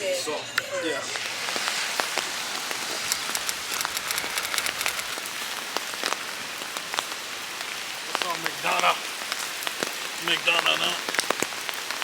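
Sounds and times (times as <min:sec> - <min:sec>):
steady rain falling: 0:00.8 - 0:12.0
raindrops ticking close by: 0:01.2 - 0:12.0.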